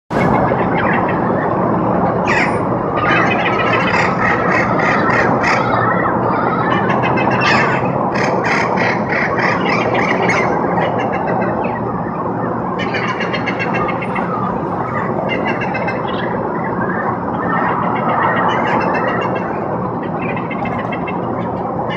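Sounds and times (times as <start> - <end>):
passing traffic rumble: 0.1 - 21.9
parrots squawking: 2.3 - 11.6, 12.8 - 16.4, 17.4 - 21.9.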